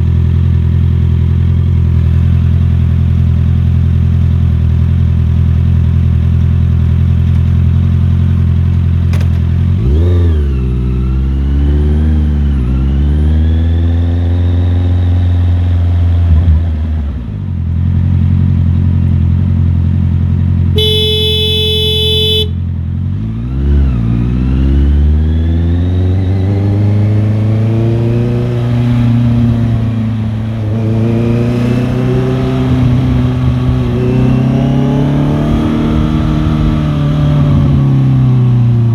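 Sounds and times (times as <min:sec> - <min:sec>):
motorcycle engine revving: 0:09.0 - 0:19.8, 0:20.7 - 0:38.9
vehicle horn: 0:20.8 - 0:22.6.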